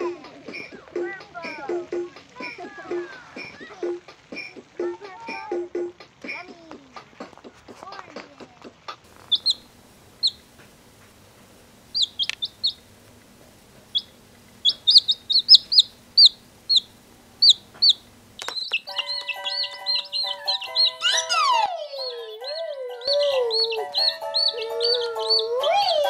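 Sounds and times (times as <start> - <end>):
music: 0.0 - 9.2, 18.9 - 26.0
faint low hum: 9.1 - 26.0
short high bird chirps: 14.0 - 25.9.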